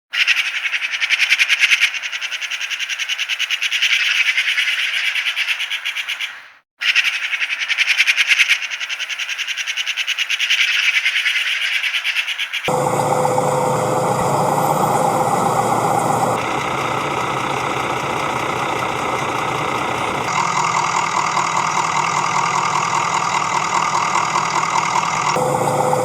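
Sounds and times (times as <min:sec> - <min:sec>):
rapid bird chirping: 0:00.1 - 0:20.4.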